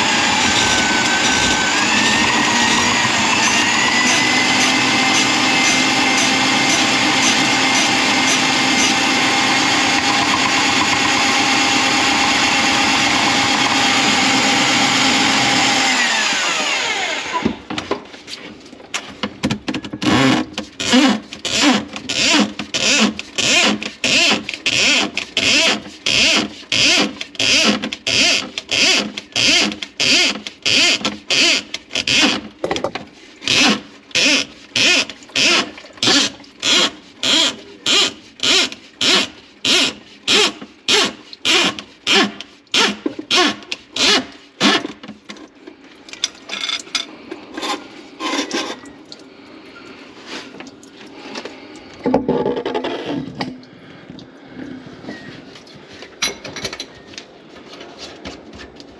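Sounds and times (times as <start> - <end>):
sink plunger squelching: 19.9 - 56.3.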